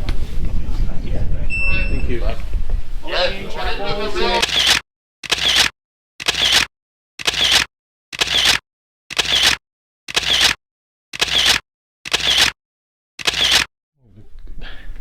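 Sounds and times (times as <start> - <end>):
camera shutter clicks: 4.4 - 10.6, 11.2 - 12.6, 13.2 - 13.7.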